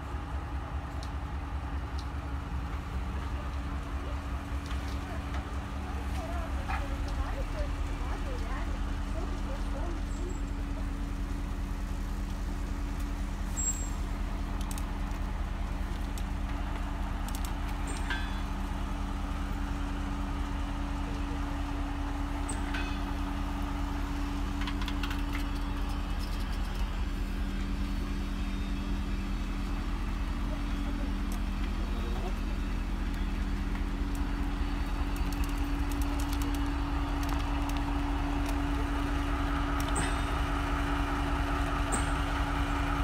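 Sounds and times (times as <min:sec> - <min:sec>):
standing train low hum: 0:00.0 - 0:43.0
light clicks and squeaks: 0:13.5 - 0:14.0.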